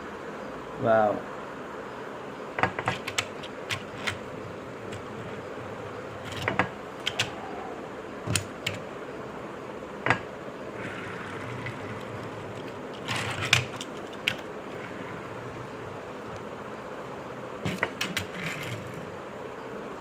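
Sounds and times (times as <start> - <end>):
toy trucks clicking and tapping: 2.6 - 4.3, 6.2 - 7.4, 8.3 - 8.8, 10.1 - 15.0, 17.7 - 19.0.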